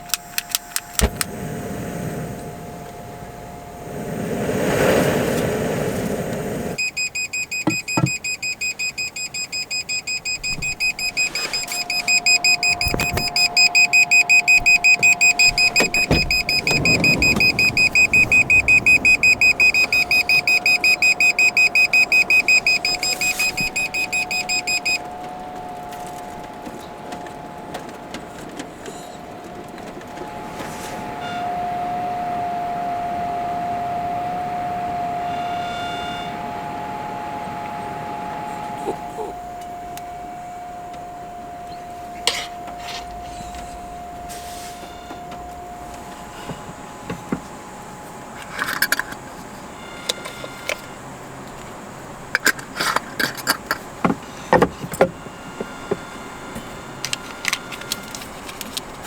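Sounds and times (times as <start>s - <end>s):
shrill electronic alarm beeps: 6.8s - 27.2s, 34.0s - 51.1s.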